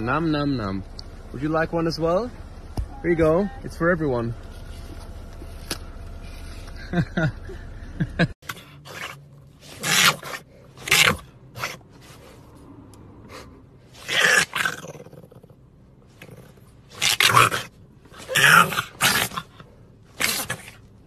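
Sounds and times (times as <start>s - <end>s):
puppy vocalising in rough bursts: 8.4s - 12.2s, 13.9s - 21.0s.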